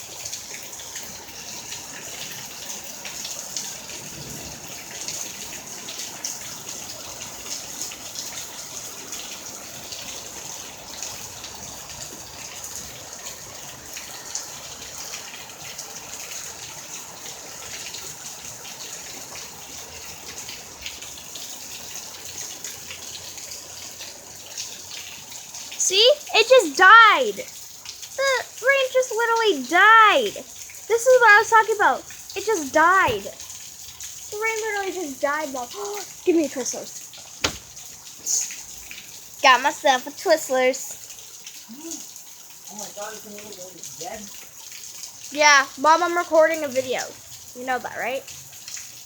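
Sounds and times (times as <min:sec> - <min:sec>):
raindrops pattering on surfaces: 0:00.0 - 0:49.0
heavy rain hissing: 0:01.2 - 0:08.3, 0:25.7 - 0:27.6, 0:28.2 - 0:33.4, 0:34.3 - 0:38.8, 0:39.4 - 0:40.9, 0:42.7 - 0:44.3.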